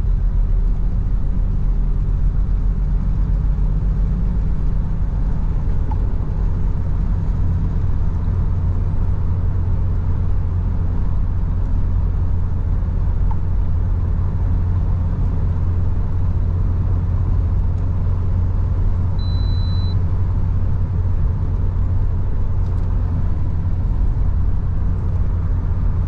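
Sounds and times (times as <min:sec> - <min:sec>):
car engine drone: 0:00.0 - 0:26.0
road noise: 0:00.0 - 0:26.0
short high beep: 0:19.2 - 0:20.0.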